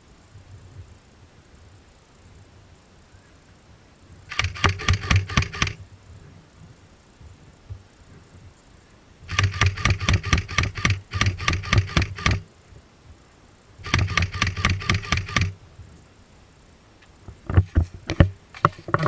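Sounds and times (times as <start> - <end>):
airsoft gun full-auto shots: 4.3 - 5.8, 9.3 - 12.5, 13.8 - 15.6
gun motor hum: 4.3 - 5.8, 9.3 - 12.5, 13.8 - 15.6.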